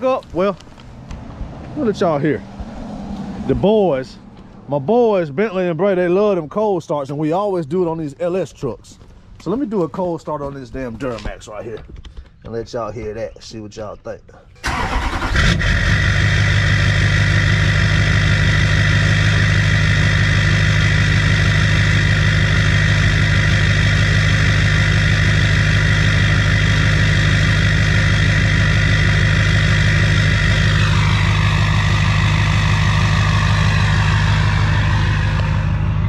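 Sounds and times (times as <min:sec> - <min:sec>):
diesel engine idling: 0:14.6 - 0:36.0
high whine: 0:15.5 - 0:36.0.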